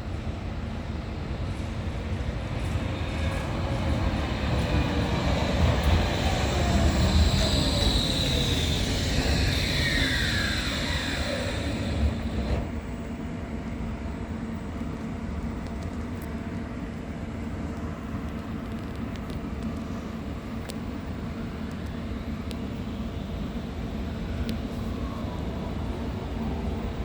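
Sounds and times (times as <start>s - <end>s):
electric tram whine: 0.0s - 14.6s, 19.7s - 27.0s
steady low rumble: 0.0s - 21.6s.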